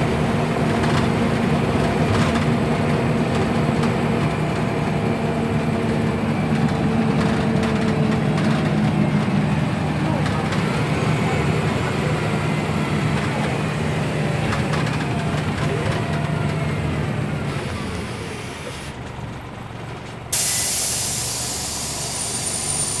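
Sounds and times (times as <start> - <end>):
bus engine humming: 0.0 - 23.0
compressed air hiss: 20.4 - 23.0.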